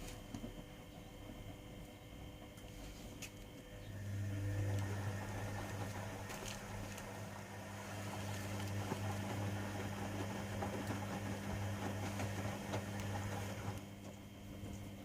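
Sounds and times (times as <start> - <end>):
washing machine motor hum: 0.0 - 15.0
laundry and water tumbling: 4.1 - 13.8.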